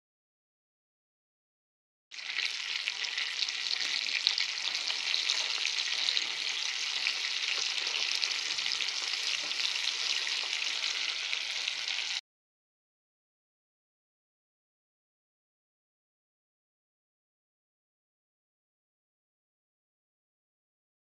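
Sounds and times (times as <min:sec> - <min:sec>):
chicken frying in oil: 0:02.1 - 0:12.2.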